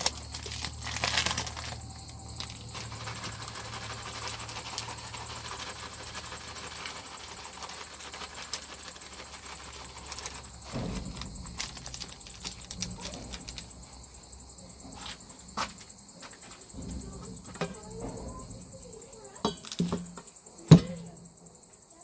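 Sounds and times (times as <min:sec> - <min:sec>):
crickets chirping: 0:00.0 - 0:22.0
sharp clicks and light knocks: 0:19.4 - 0:21.4.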